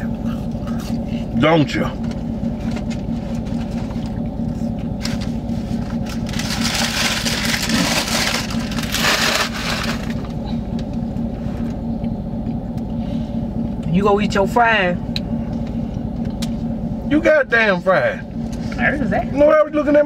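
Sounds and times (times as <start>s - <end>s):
vehicle engine idling: 0.0s - 20.0s
paper food wrappers crinkling: 6.1s - 10.2s.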